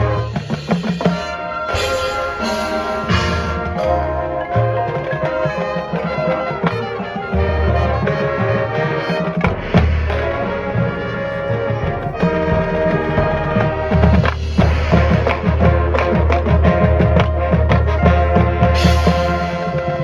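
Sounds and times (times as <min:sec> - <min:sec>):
sharp drum strikes: 0:00.0 - 0:04.2, 0:09.5 - 0:16.7
brass sustained chords: 0:00.0 - 0:20.0.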